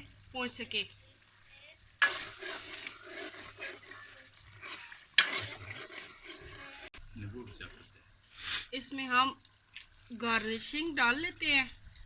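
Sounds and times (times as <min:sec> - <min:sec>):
chicken sizzling in a wok: 0:00.0 - 0:07.0
stirring strokes in a wok: 0:00.0 - 0:12.0.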